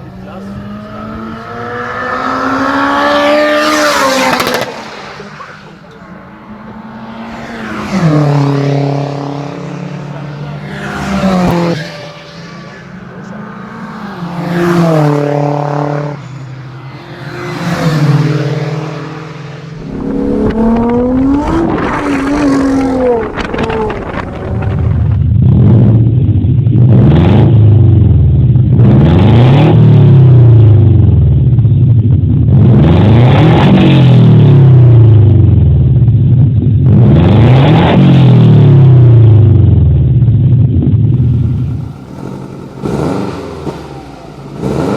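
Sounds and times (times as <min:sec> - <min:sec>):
car engines revving: 0:00.0 - 0:44.9.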